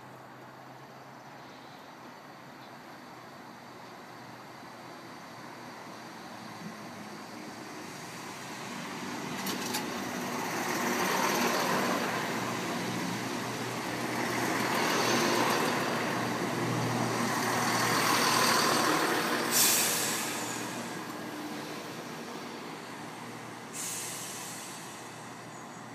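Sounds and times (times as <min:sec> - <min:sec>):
train running and rolling: 0:02.0 - 0:25.9
brake air hiss: 0:18.0 - 0:21.8, 0:23.6 - 0:25.5.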